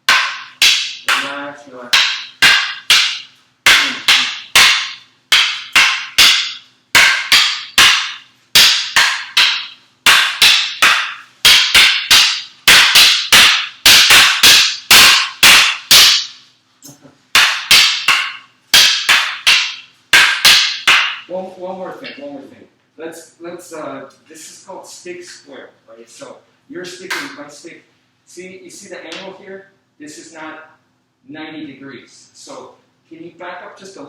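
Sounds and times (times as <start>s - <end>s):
sticks clacking together: 0.1s - 16.4s.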